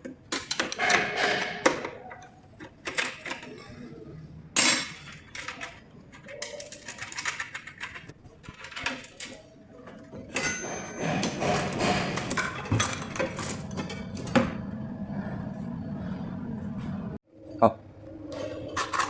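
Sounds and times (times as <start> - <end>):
metal tools clinking: 4.6 - 14.4, 18.1 - 19.0.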